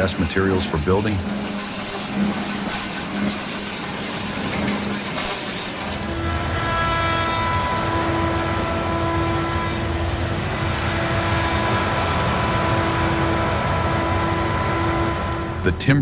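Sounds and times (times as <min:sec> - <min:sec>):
heavy machine engine running: 0:00.0 - 0:16.0
whining tones: 0:00.0 - 0:16.0.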